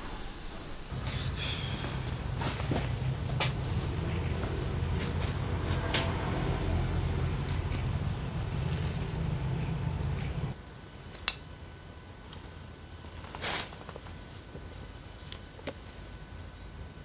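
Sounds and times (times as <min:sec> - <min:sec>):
low machine hum: 0:00.9 - 0:17.0
rustle or scrape: 0:13.2 - 0:14.0.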